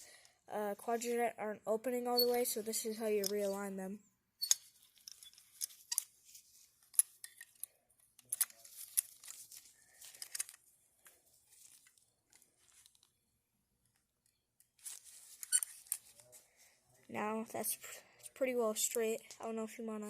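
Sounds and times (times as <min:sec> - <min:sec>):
clicks and scrapes of metal parts: 0:03.2 - 0:03.6, 0:04.4 - 0:10.6, 0:14.8 - 0:16.2.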